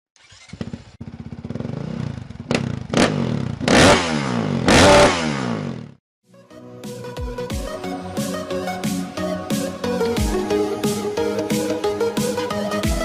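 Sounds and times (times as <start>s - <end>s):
motocross bike engine revving: 0.2s - 6.0s.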